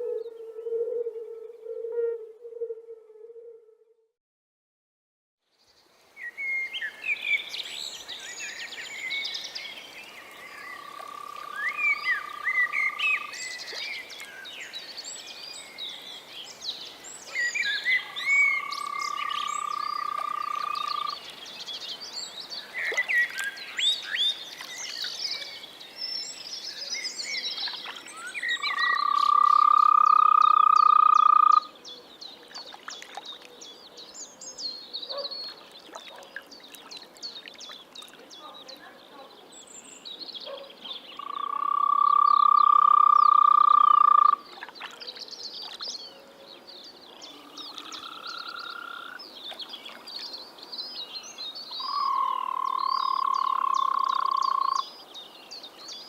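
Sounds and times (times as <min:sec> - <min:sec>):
frog trilling: 0:10.8 - 0:13.3, 0:18.2 - 0:21.2, 0:28.6 - 0:31.7, 0:41.2 - 0:44.4, 0:47.4 - 0:49.2, 0:51.8 - 0:54.8.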